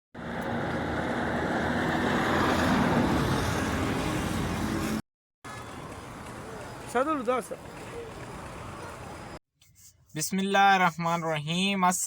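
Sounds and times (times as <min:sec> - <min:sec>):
road traffic noise: 0:00.2 - 0:09.4.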